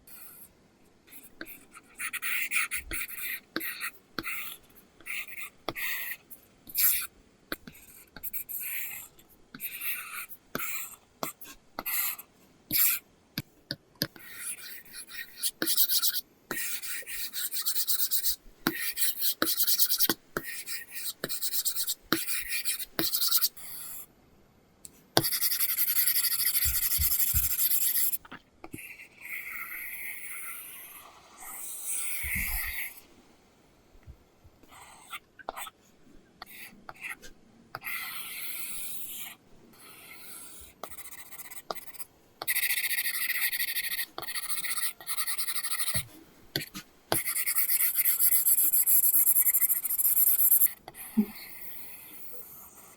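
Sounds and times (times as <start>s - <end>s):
stylus scratching on screen: 14.1s - 24.0s, 25.2s - 33.0s, 36.4s - 52.9s.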